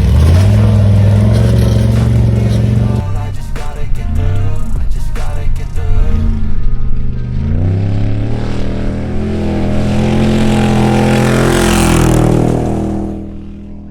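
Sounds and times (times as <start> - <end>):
rushing noise: 0.0 - 13.9
truck engine at full throttle: 0.0 - 13.9.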